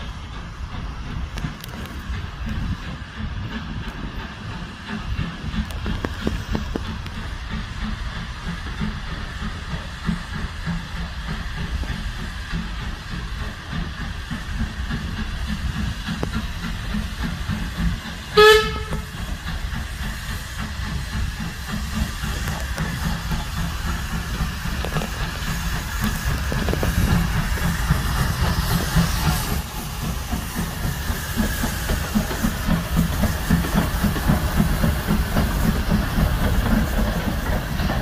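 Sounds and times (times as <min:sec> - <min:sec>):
locomotive engine rumbling: 0:00.0 - 0:38.0
steam hiss: 0:00.0 - 0:38.0
steam whistle blast: 0:18.3 - 0:19.2.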